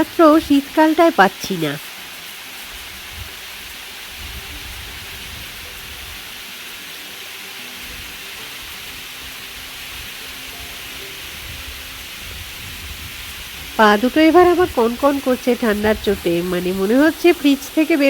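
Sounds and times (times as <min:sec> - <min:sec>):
waterfall rushing: 0:00.0 - 0:18.0
wind buffeting microphone: 0:02.9 - 0:03.5, 0:04.1 - 0:06.2, 0:11.4 - 0:17.7.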